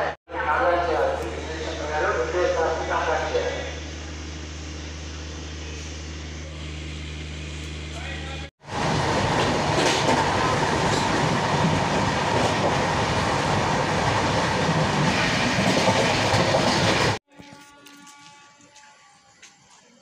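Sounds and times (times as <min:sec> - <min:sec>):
train wheels rumbling on rail: 0:08.6 - 0:17.2.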